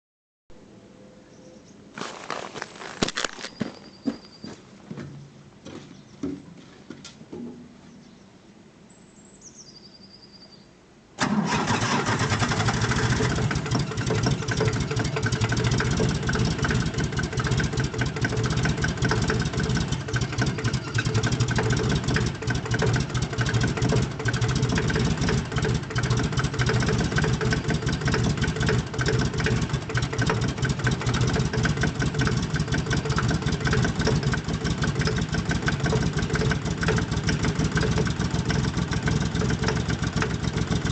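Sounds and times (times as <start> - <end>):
diesel tractor engine starting: 11.2 - 40.9.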